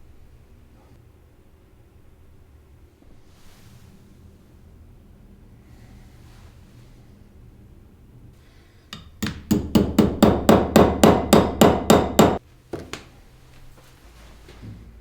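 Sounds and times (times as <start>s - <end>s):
light hammer taps: 8.9s - 13.1s
hammer blows ringing: 9.0s - 12.4s.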